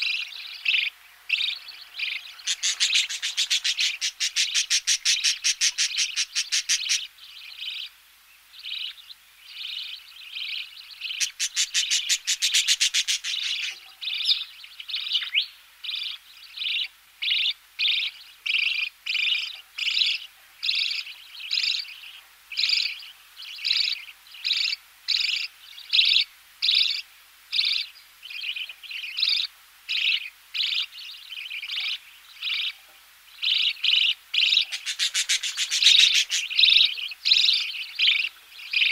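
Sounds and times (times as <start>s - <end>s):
chicks buzzing begging calls: 0.0s - 7.1s, 11.0s - 14.4s, 33.5s - 38.9s
chicks chirping: 0.0s - 7.1s, 11.0s - 14.4s, 33.5s - 38.9s.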